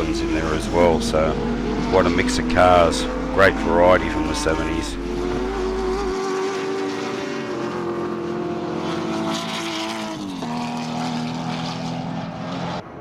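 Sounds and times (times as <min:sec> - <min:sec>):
racing cars passing at high revs: 0:00.0 - 0:13.0.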